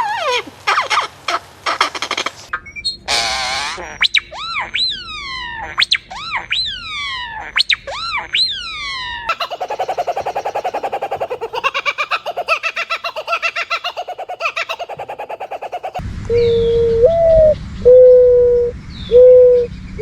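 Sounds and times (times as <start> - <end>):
swooping bird calls: 2.4 - 16.0
rapid bird chatter: 9.3 - 16.0.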